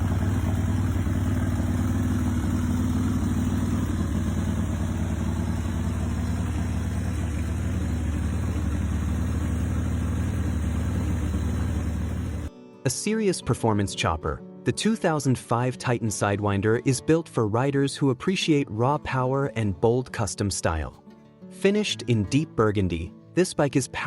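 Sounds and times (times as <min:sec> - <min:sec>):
motorcycle engine idling: 0:00.0 - 0:12.5.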